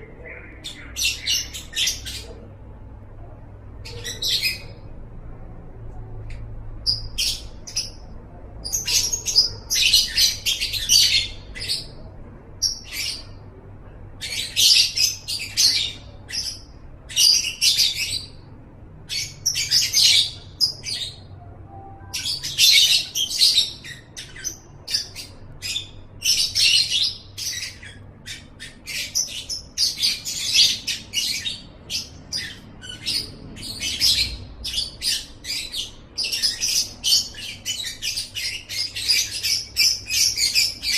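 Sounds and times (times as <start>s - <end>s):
bird chirps: 19.1s - 40.9s.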